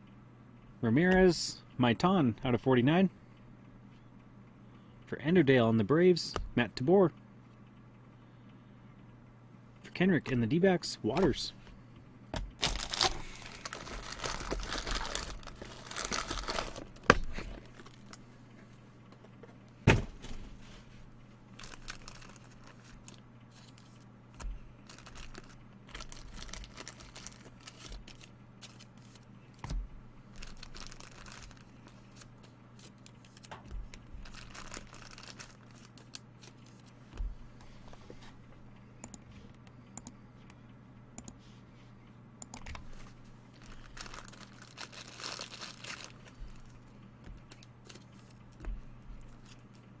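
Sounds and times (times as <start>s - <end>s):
faint steady hum: 0.0s - 50.0s
wrappers tearing and crinkling: 12.6s - 18.2s, 21.6s - 23.8s, 24.8s - 29.2s, 30.3s - 33.5s, 34.2s - 36.8s, 43.6s - 46.8s.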